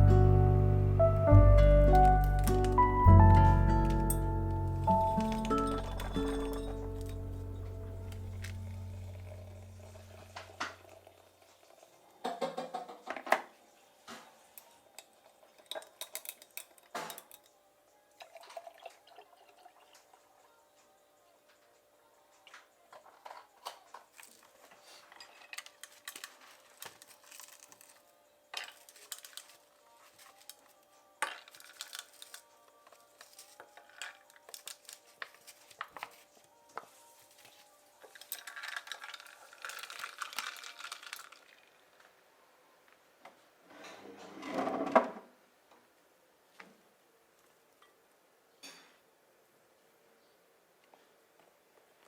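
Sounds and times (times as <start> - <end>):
dishes and cutlery clinking: 3.9 - 8.7, 12.2 - 13.4, 14.1 - 17.6, 22.9 - 27.9, 48.6 - 49.0.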